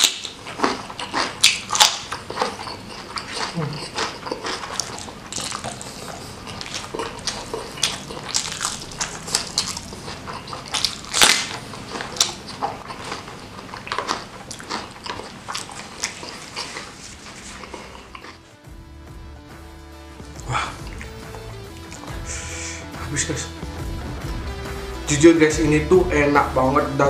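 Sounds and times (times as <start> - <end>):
person chewing and crunching food: 0.0 - 18.6, 20.2 - 22.4.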